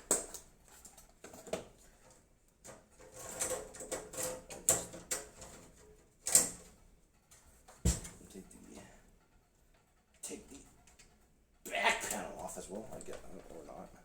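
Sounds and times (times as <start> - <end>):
clicks taps and rustles: 0.0 - 8.9, 12.5 - 14.0.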